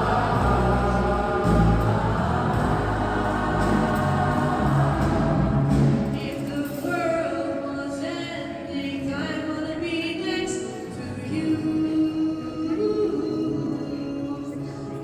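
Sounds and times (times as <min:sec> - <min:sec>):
choir singing held notes: 0:00.0 - 0:06.9.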